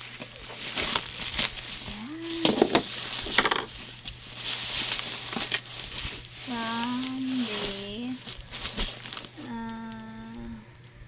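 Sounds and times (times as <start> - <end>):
plastic tearing: 0.0 - 10.0
plastic packaging rustling: 0.0 - 10.1
person humming: 1.9 - 2.7, 9.4 - 10.8.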